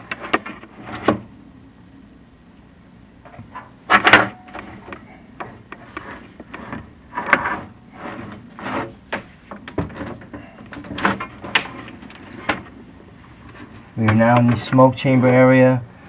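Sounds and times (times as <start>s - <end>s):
rods knocking and scraping in chimney: 3.3s - 15.5s.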